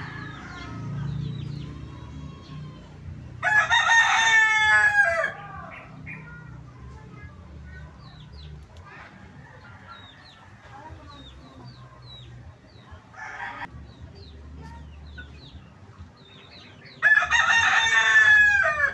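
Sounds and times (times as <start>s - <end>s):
rooster crowing: 0.0s - 5.8s, 17.0s - 18.9s.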